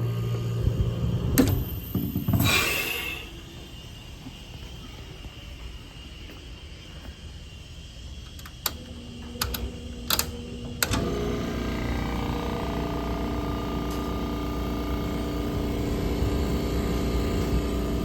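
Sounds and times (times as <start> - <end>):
compressor motor humming: 0.0 - 18.0.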